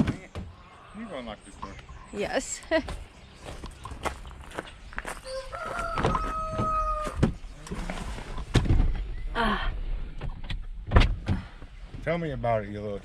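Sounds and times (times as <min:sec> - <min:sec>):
rooster crowing: 0:05.1 - 0:07.2
knocks and thuds: 0:08.5 - 0:09.1, 0:10.2 - 0:11.5.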